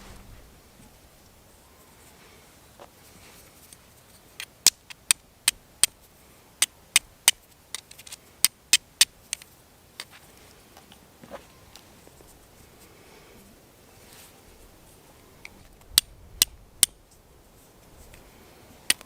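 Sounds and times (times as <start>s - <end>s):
flint striking fire steel clicks: 4.4s - 6.0s, 6.6s - 10.1s, 15.4s - 17.1s.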